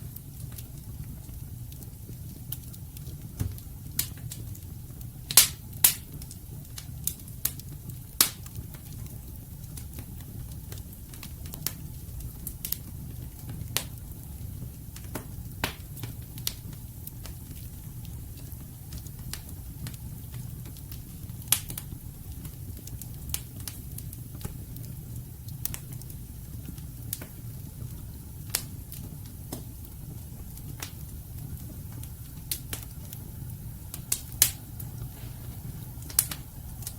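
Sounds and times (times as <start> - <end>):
fire flame rumble: 0.0 - 36.9
logs crackling and popping: 0.0 - 36.9.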